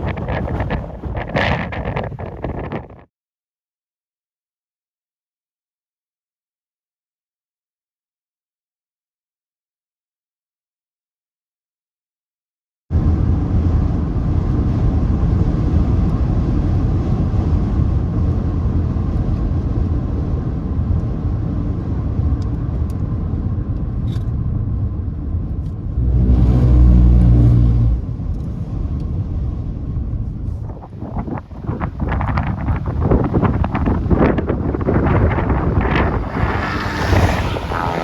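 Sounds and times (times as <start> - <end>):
low rumbling noise: 12.9 - 23.7, 24.5 - 38.0.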